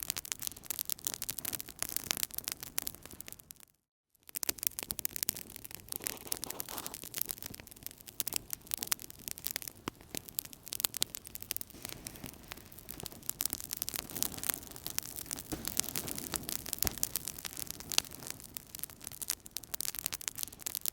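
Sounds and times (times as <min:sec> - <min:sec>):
wood fire crackling: 0:00.0 - 0:20.9
hiss of burning fire: 0:05.6 - 0:20.9.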